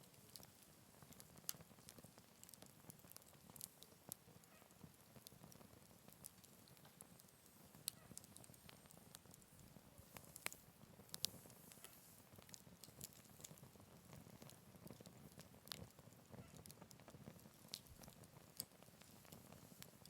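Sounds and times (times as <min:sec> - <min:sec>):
faint wood fire crackling: 0:00.0 - 0:20.0.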